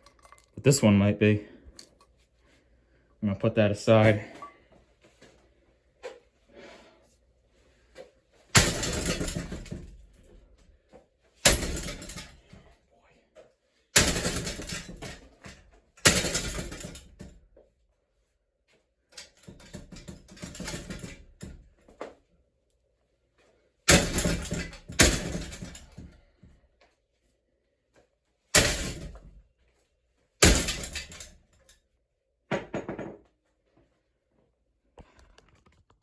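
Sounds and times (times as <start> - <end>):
rattling and scraping: 8.5 - 10.1, 11.4 - 12.5, 14.0 - 15.4, 19.4 - 21.3, 23.9 - 26.2
hard crashing blows on metal: 30.4 - 31.2.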